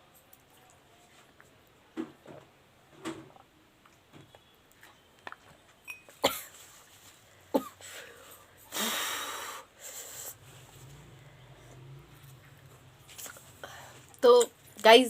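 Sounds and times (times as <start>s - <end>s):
wheezing breath out: 7.8s - 11.6s.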